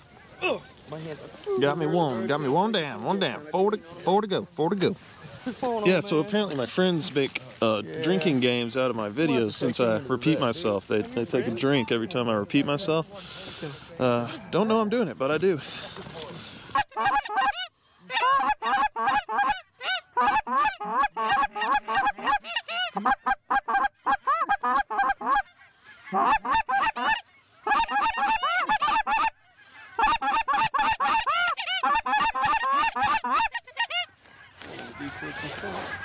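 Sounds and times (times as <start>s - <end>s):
goose clucking and honking: 16.7s - 36.0s.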